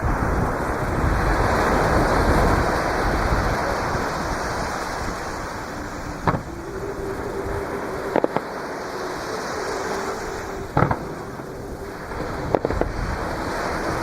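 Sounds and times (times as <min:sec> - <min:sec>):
waves breaking on beach: 0:00.0 - 0:14.0
firework bang: 0:06.2 - 0:06.5, 0:10.8 - 0:11.2.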